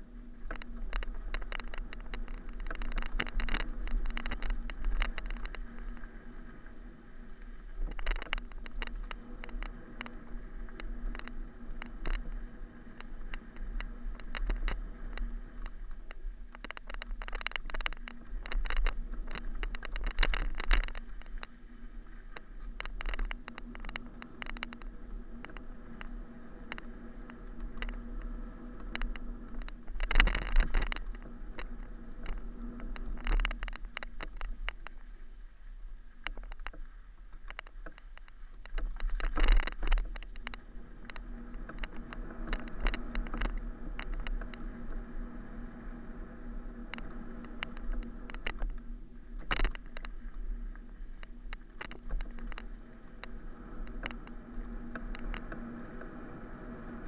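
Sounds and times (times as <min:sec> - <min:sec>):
camera rattling and clattering: 0:00.0 - 0:35.4, 0:36.1 - 0:56.2
faint constant hum: 0:00.0 - 0:57.0.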